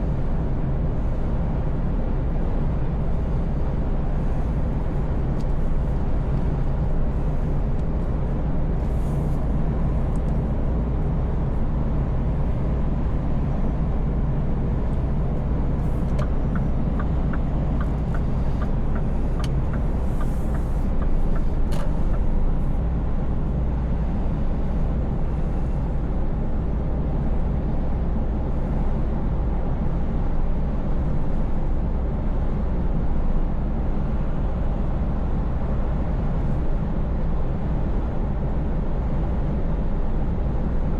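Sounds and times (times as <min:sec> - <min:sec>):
road noise: 0:00.0 - 0:40.9
truck engine running: 0:02.0 - 0:23.4.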